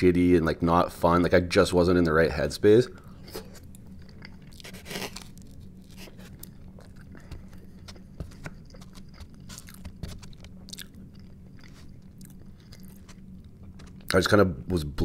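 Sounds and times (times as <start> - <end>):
chewing and crunching: 3.2 - 14.2.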